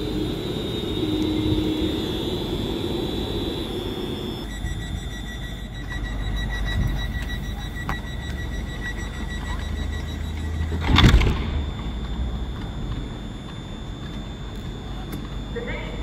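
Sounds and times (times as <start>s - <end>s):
loud hiss: 0.0s - 4.5s
thin high whine: 0.0s - 16.0s
train low rumble: 0.0s - 16.0s.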